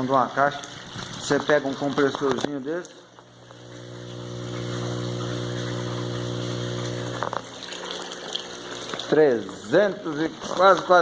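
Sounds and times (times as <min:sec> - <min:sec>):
electric motor humming: 0:03.2 - 0:09.1.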